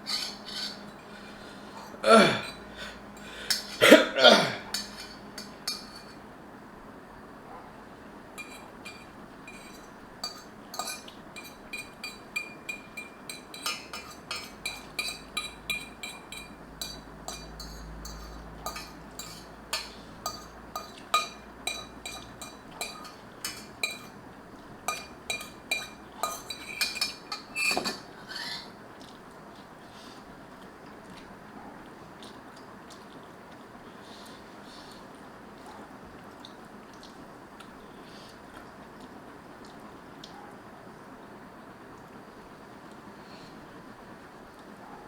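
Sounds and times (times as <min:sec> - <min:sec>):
utensil clinking against bowl: 0:00.0 - 0:04.0, 0:04.6 - 0:06.2, 0:08.4 - 0:24.2, 0:24.8 - 0:28.1.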